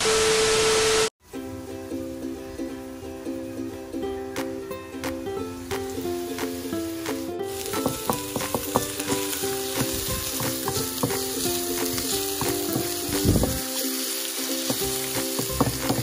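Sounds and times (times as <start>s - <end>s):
plucked-string music: 1.2s - 16.0s
garlic and onion sizzling in oil: 5.1s - 16.0s
wooden spatula scraping wok: 14.5s - 16.0s.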